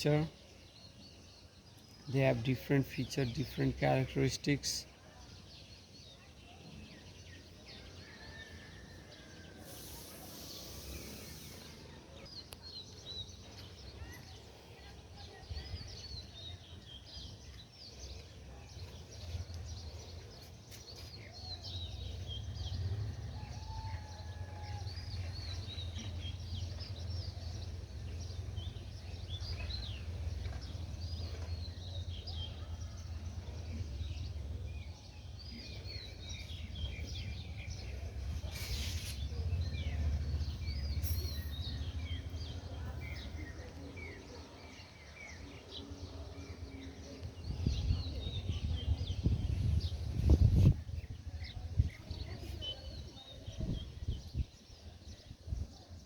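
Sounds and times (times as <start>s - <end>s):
small birds chirping: 0.0s - 56.0s
burst of hiss: 9.6s - 12.0s.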